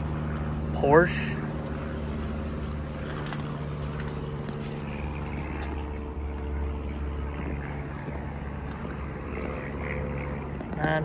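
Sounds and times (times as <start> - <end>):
low mechanical drone: 0.0 - 11.0.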